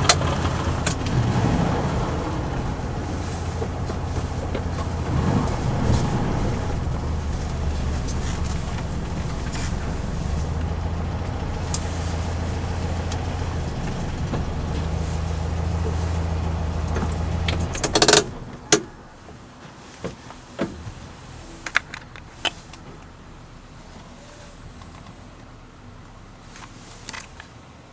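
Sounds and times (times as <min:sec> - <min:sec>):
sharp clicks and knocks: 0:00.0 - 0:18.9
car engine running: 0:00.0 - 0:19.6, 0:20.9 - 0:27.5.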